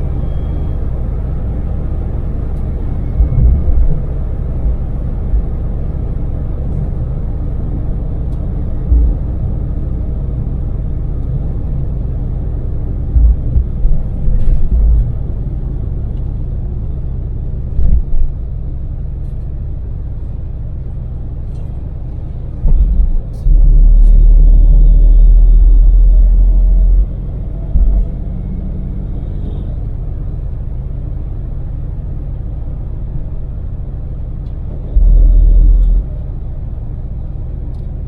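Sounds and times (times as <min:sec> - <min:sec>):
road noise: 0:00.0 - 0:38.0
deep rumbling surges: 0:02.2 - 0:06.2, 0:11.5 - 0:18.4.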